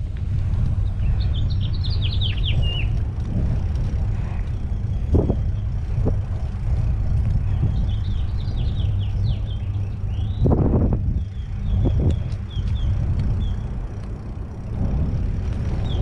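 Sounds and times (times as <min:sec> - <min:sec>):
wind and road noise rumble: 0:00.0 - 0:16.0
bird chirping: 0:00.8 - 0:03.0, 0:07.5 - 0:10.5.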